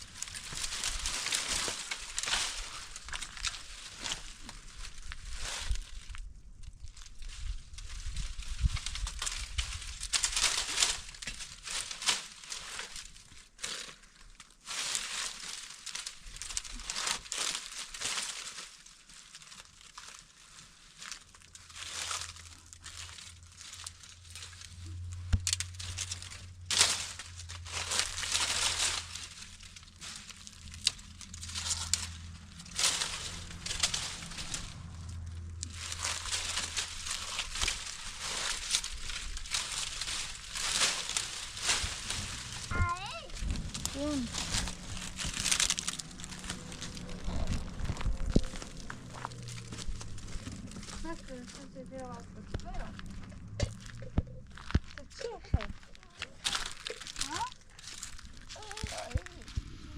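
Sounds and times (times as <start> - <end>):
material crinkling and rustling: 0.0 - 59.9
low steady hum: 20.6 - 59.9.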